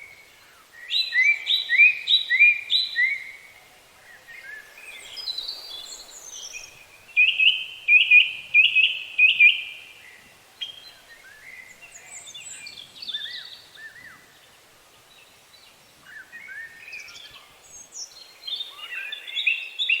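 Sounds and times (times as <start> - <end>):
faint background hiss: 0.0 - 20.0.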